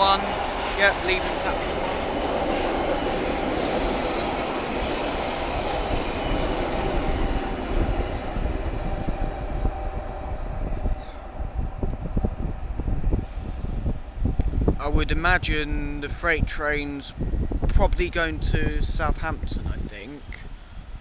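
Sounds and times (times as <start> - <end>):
train running noise: 0.0 - 14.8
high wheel squeal: 3.2 - 7.2.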